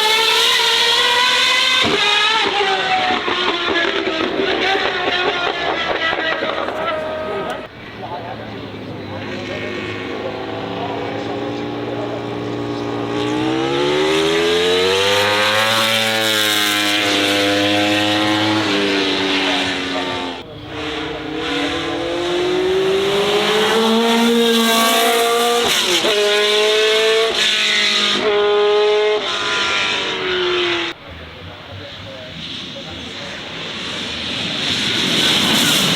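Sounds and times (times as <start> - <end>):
racing car engine accelerating: 0.0 - 35.9.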